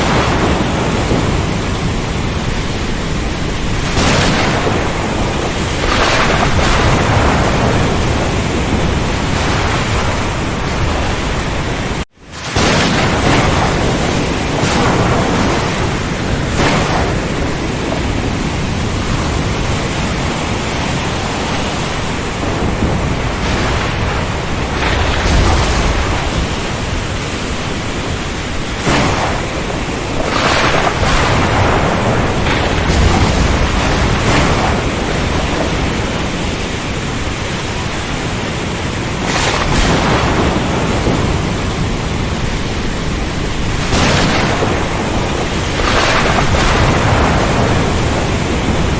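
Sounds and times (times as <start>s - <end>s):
steady rain: 0.0s - 48.9s.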